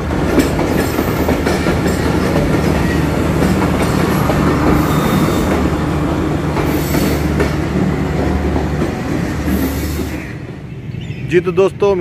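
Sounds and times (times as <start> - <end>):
train engine drone: 0.0 - 11.1
train wheels on rails: 0.0 - 11.7
high wheel squeals: 4.0 - 5.8.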